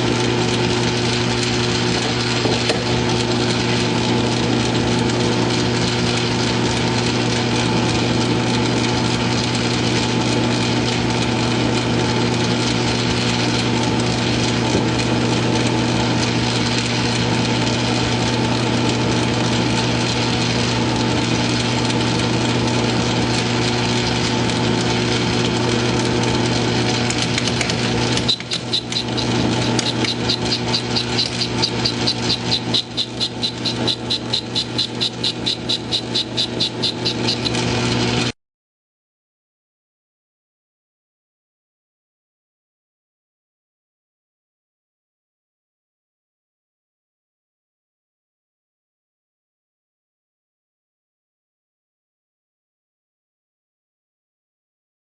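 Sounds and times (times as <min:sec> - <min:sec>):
metal lathe running: 0:00.0 - 0:38.3
rasping machining noise: 0:26.1 - 0:38.3
fast even pulsing: 0:27.0 - 0:38.3.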